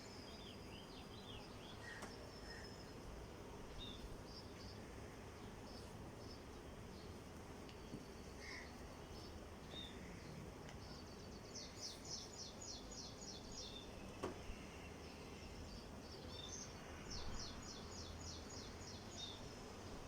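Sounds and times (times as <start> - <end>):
background hiss: 0.0 - 20.0
bird chirping: 7.8 - 19.5.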